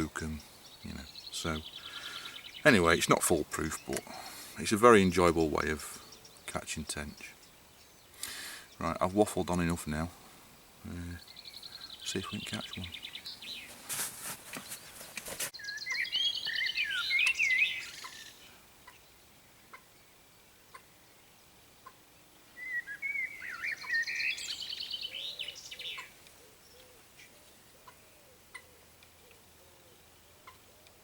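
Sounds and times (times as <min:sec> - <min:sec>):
songbird trilling: 0:00.0 - 0:09.2, 0:14.6 - 0:19.1, 0:22.6 - 0:28.8.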